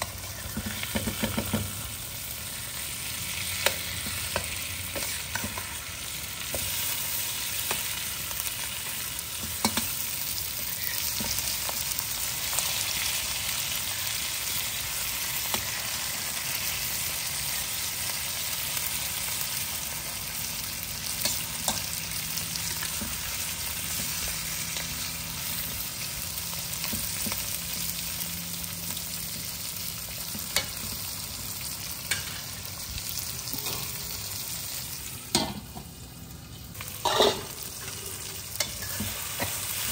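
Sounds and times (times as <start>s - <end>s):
prawns sizzling in a wok: 0.0s - 39.9s
metal spatula scraping a pan: 32.1s - 32.6s, 33.4s - 34.5s, 36.8s - 39.9s.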